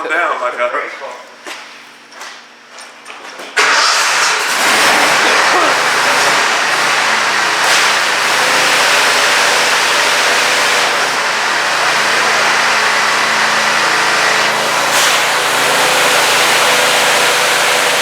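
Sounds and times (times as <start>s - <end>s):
engine humming: 3.6s - 18.0s
pressure washer water jet hissing: 3.6s - 18.0s.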